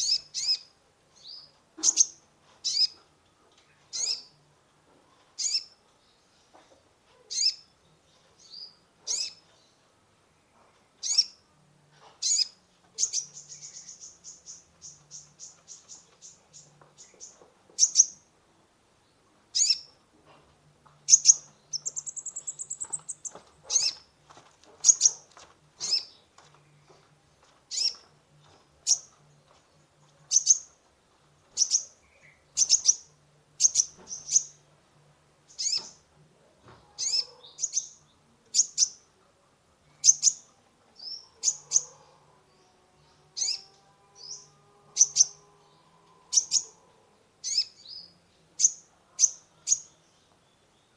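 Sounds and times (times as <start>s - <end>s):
bird chirping: 0.0s - 3.0s, 3.7s - 4.4s, 5.4s - 6.2s, 7.3s - 9.8s, 12.2s - 18.3s, 19.6s - 20.0s, 21.1s - 24.0s, 24.8s - 27.0s, 27.7s - 30.8s, 31.5s - 34.7s, 35.5s - 36.1s, 37.0s - 39.0s, 39.9s - 46.8s, 47.4s - 50.9s.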